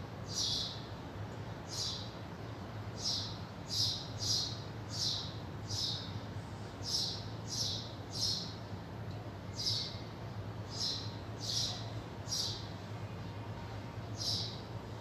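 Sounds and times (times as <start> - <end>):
low steady hum: 0.0 - 15.0
small bird chirping: 0.3 - 0.8, 1.7 - 2.1, 3.0 - 6.1, 6.8 - 8.6, 9.6 - 10.0, 10.7 - 12.7, 14.2 - 14.6.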